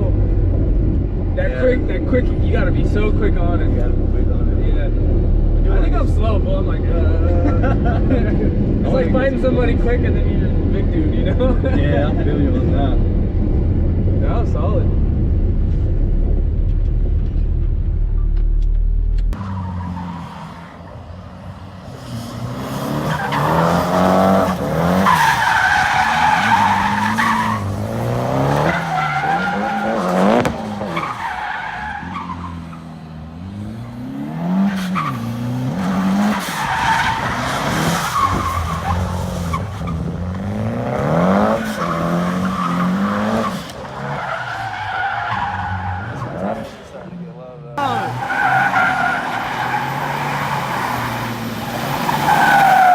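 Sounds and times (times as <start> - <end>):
car engine revving: 12.0 - 47.0
tyres squealing: 23.1 - 32.8, 47.8 - 52.9.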